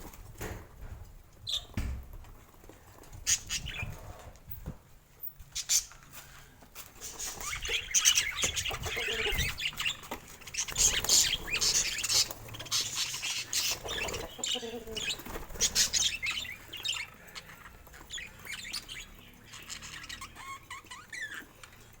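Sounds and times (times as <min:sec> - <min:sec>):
budgerigars chirping and chattering: 0:03.2 - 0:04.1, 0:05.5 - 0:06.0, 0:07.0 - 0:22.0.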